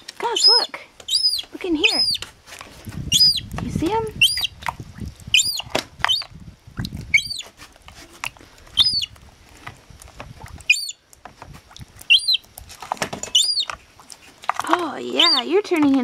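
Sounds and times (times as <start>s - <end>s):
seagull chick peeping: 0.3s - 2.2s, 3.1s - 3.5s, 4.1s - 4.6s, 5.3s - 6.3s, 7.1s - 7.5s, 8.7s - 9.2s, 10.6s - 11.0s, 12.0s - 12.5s, 13.3s - 13.8s, 15.1s - 15.5s.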